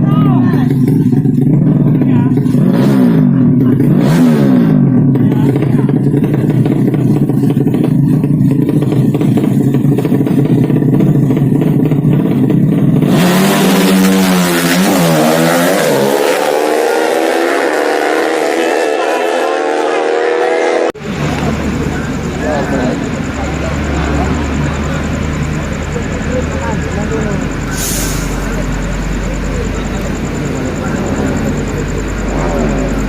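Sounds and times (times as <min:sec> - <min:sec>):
motorcycle accelerating hard: 0:00.0 - 0:33.0
motorcycle engines revving: 0:00.0 - 0:33.0.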